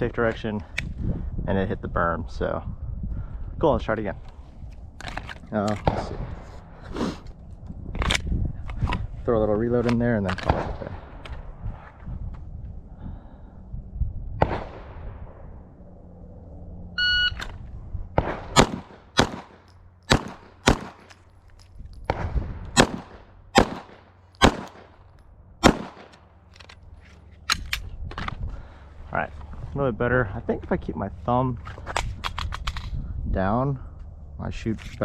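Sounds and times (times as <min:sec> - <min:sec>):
shot timer beep: 0:17.0 - 0:17.4
handgun shots: 0:18.2 - 0:21.2, 0:22.0 - 0:25.0, 0:25.6 - 0:26.2.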